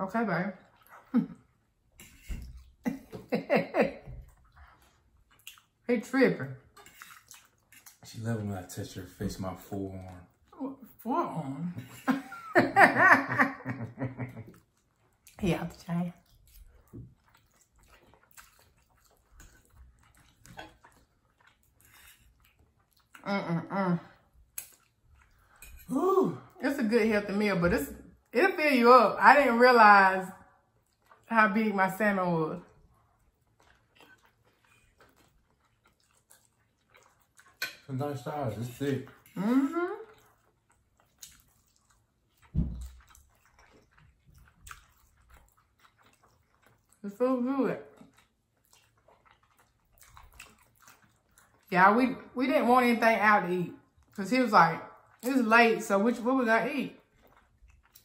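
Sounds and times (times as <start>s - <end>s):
chewing and mouth sounds: 0.5s - 3.3s, 3.9s - 11.0s, 13.8s - 23.4s, 24.0s - 26.6s, 30.4s - 31.6s, 32.6s - 52.3s, 53.7s - 54.2s, 54.8s - 55.5s, 56.1s - 58.0s
wet chewing mouth smacks: 4.2s - 5.8s, 16.1s - 23.2s, 40.1s - 47.0s, 47.9s - 51.7s, 57.0s - 58.0s
low thump: 42.5s - 42.9s.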